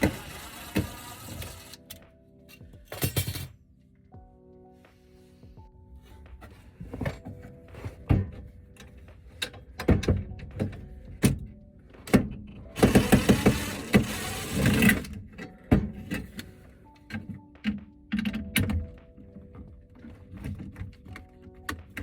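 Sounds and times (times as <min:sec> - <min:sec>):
background music: 0:00.0 - 0:22.0
irregular knocks and thuds: 0:06.3 - 0:13.2.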